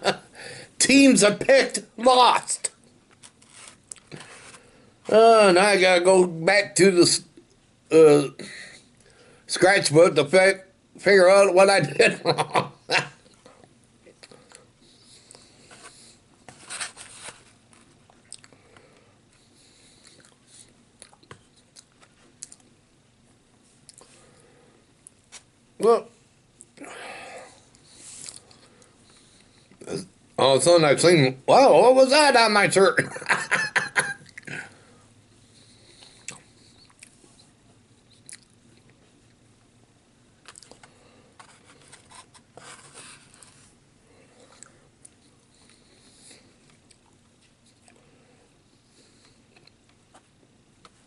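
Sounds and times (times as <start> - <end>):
person chewing food: 17.9 - 18.6, 20.0 - 22.8, 34.2 - 34.8, 35.9 - 37.4, 38.1 - 39.4, 40.4 - 42.4, 46.4 - 48.1
mouth clicks and smacking: 38.1 - 39.0.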